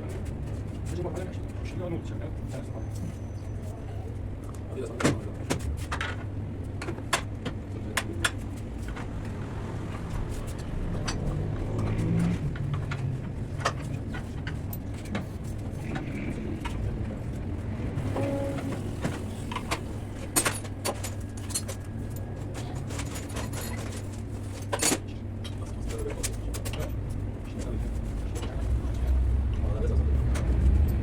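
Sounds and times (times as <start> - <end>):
steady low rumble: 4.1 - 20.4.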